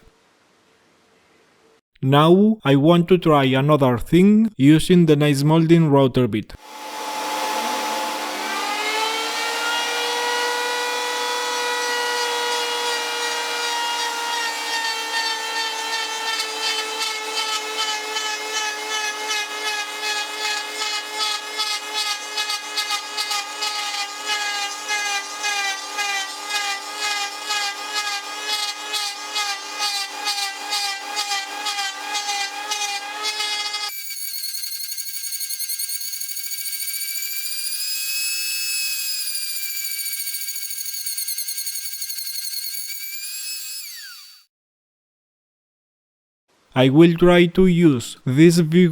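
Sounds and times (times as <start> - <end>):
router bit cutting wood: 6.6 - 44.5
wood router whine: 6.6 - 44.5.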